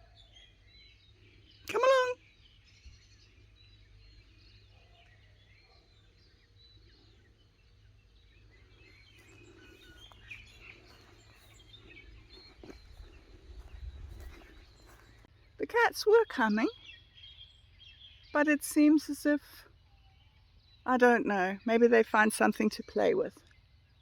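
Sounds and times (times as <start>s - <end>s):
small birds chirping: 0.0s - 24.0s
wind rumble on microphone: 9.4s - 15.2s.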